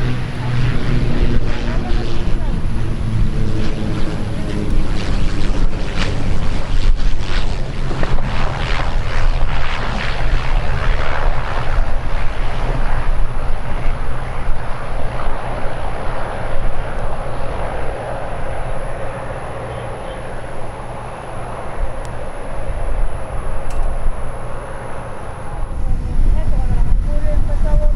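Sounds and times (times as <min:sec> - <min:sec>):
aircraft engine noise: 0:00.0 - 0:27.9.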